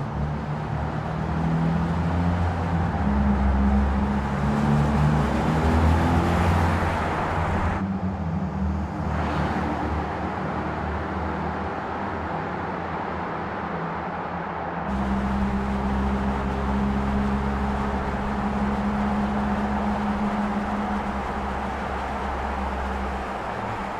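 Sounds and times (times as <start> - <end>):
road noise: 0.0 - 23.9
car engine running: 14.9 - 23.9.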